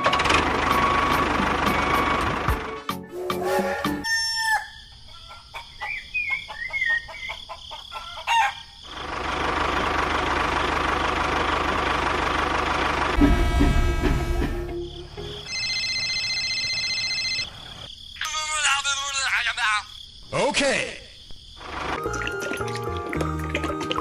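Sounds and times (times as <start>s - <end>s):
rooster-like call: 3.2s - 5.4s
chickens clucking: 3.9s - 8.7s.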